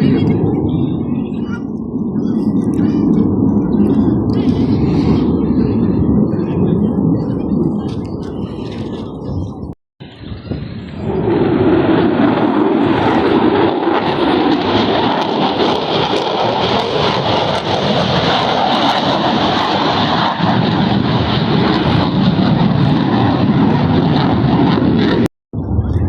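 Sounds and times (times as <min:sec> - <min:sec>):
aircraft engine in flight: 0:00.0 - 0:26.0.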